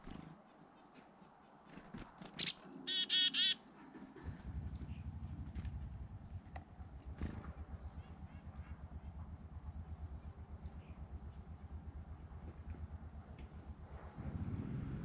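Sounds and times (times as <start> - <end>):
birds chirping: 0.0 - 3.6, 4.4 - 12.8
harsh bird call: 2.4 - 3.6
low pulsing rumble: 4.2 - 15.0.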